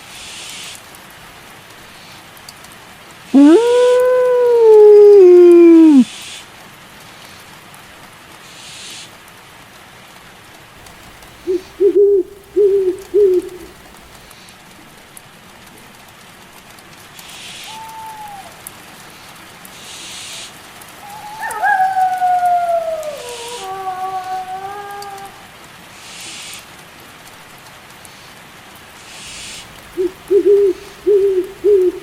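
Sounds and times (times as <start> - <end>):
steady rain falling: 0.0 - 32.0
wolves howling: 3.4 - 6.0, 11.0 - 14.1, 21.0 - 25.5, 29.7 - 32.0
owl hooting: 3.4 - 6.1, 10.8 - 14.2, 17.4 - 18.6, 19.9 - 25.4, 29.1 - 32.0.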